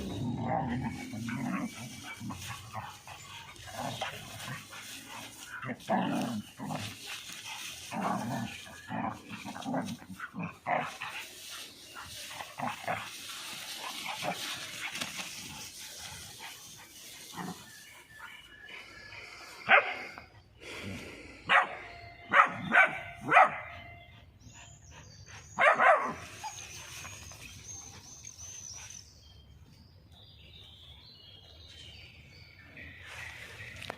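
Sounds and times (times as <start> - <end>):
dogs scuffling: 1.0 - 17.5
dogs barking sharply: 21.5 - 23.8, 25.6 - 26.2.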